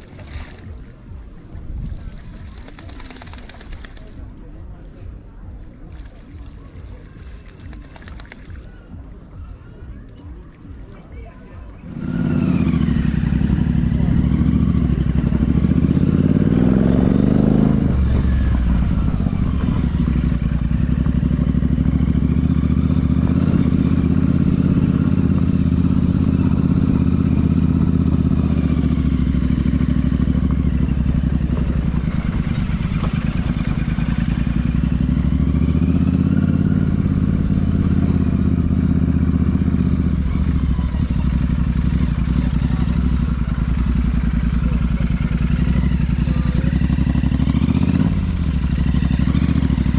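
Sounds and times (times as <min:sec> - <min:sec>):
motorcycle engine and exhaust: 0:00.0 - 0:49.9.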